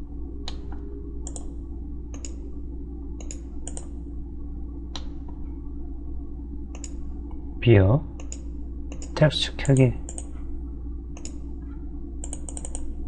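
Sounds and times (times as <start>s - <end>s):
low electrical hum: 0.0s - 13.0s
computer mouse clicking: 0.4s - 1.5s, 2.1s - 2.4s, 3.2s - 3.9s, 6.7s - 7.0s, 8.2s - 10.4s, 11.2s - 11.4s, 12.2s - 12.9s.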